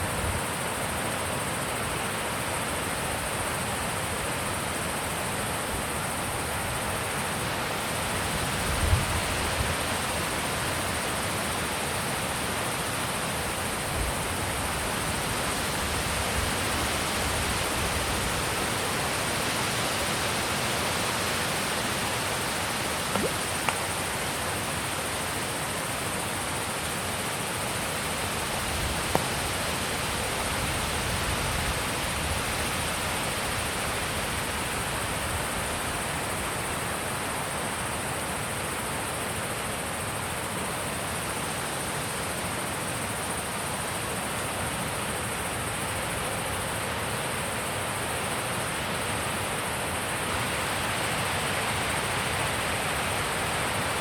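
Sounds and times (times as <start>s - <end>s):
wind thump on microphone: 23.1s - 23.8s.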